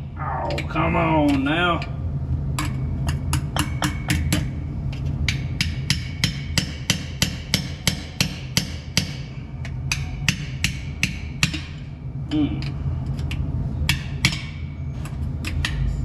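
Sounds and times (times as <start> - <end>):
hammer striking metal: 2.6 - 4.6, 5.2 - 11.8, 13.9 - 14.8.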